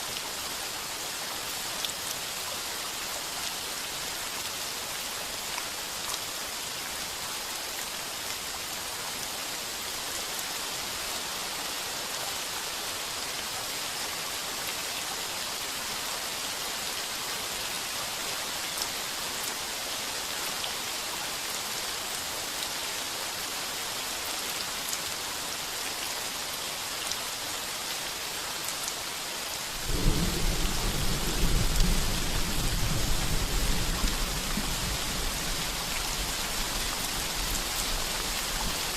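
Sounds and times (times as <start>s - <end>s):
heavy rain on a tin roof: 0.0s - 38.9s
thunder rumbling: 29.8s - 36.5s.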